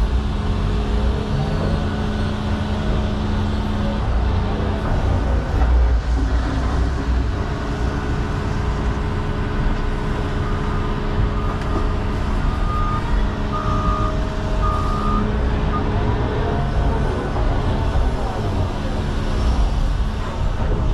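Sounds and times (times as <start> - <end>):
excavator diesel engine running: 0.0 - 20.9
reversing alarm beeping: 10.4 - 16.0.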